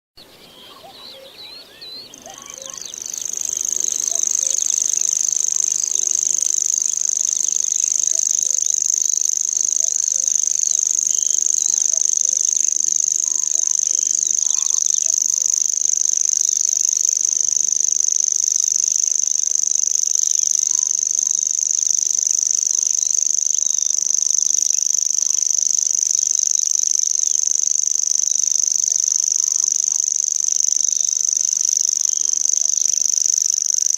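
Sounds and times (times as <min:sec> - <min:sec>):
bird reeling trill: 0:00.2 - 0:33.9.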